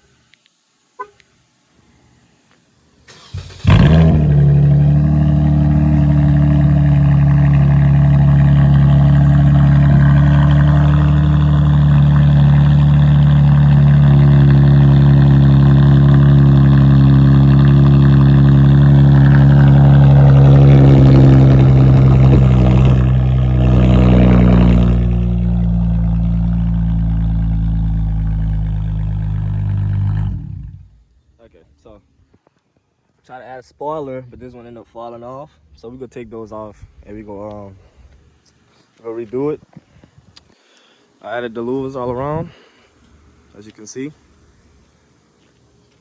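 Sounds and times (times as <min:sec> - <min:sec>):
loud car engine idling: 0:03.4 - 0:30.9.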